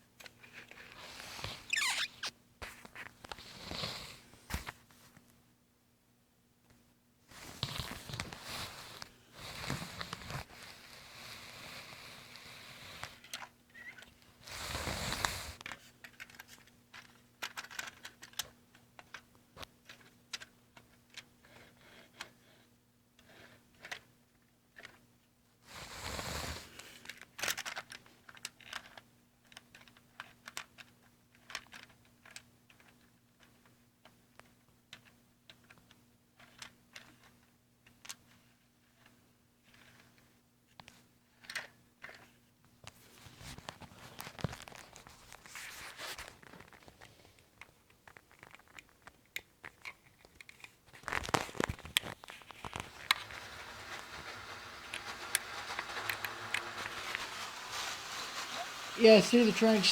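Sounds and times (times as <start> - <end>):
rustling noise: 7.3 - 12.4, 42.8 - 59.9
model train wheels clicking: 52.8 - 59.9.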